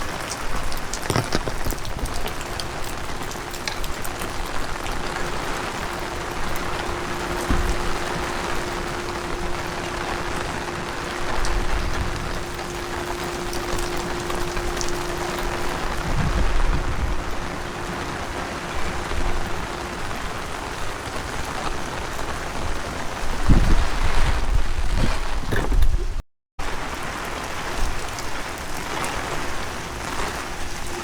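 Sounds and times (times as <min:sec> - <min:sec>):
faint steady hum: 0:00.0 - 0:23.9
heavy rain falling: 0:00.0 - 0:25.4, 0:26.6 - 0:31.0
wind gusts hitting microphone: 0:01.0 - 0:26.2.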